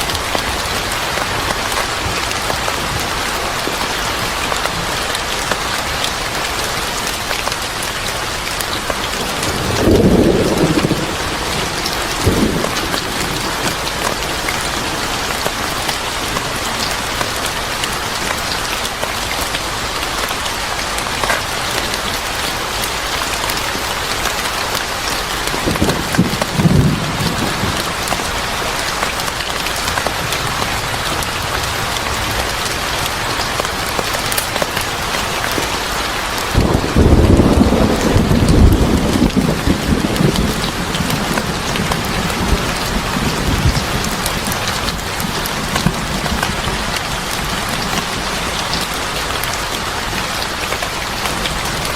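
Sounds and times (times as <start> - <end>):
steady rain: 0.0 - 51.9
low thunder rumbles: 8.8 - 17.2, 25.5 - 28.9, 33.2 - 48.9.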